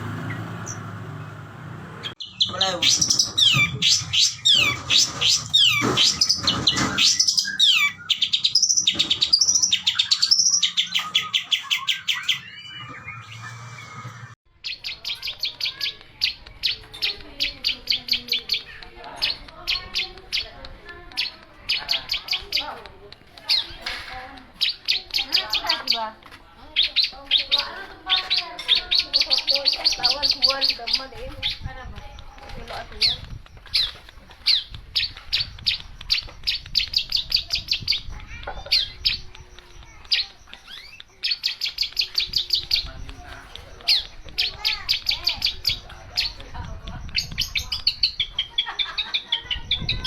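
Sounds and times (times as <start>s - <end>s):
bird singing sharp chirps: 2.0s - 20.5s
bird chattering song: 2.0s - 50.0s.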